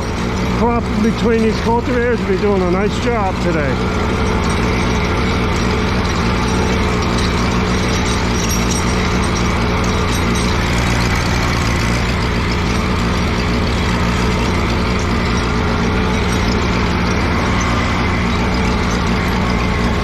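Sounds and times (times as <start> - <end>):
tractor engine running under load: 0.0 - 20.0.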